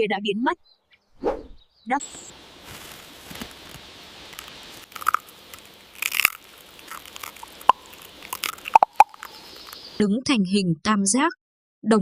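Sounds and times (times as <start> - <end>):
squirrel gnawing a nut shell: 2.8 - 10.0.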